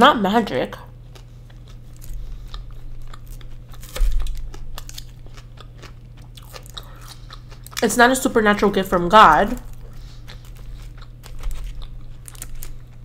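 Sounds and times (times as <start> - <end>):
soft crunching of food: 0.8 - 13.0
chewing with wet mouth clicks: 1.1 - 7.9, 9.6 - 13.0.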